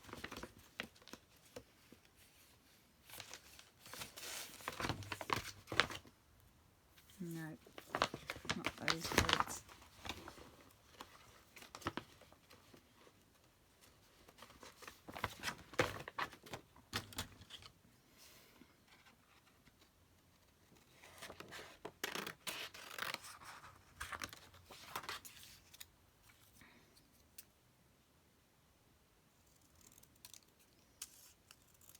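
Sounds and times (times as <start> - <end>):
paper rustling and scratching: 0.0 - 6.1, 7.3 - 12.9.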